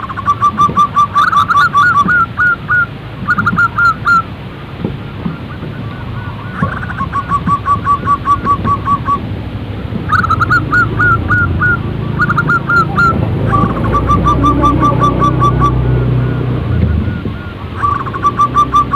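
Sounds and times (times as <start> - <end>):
steady low hum: 0.0 - 18.9
dove calling in short notes: 9.9 - 18.9.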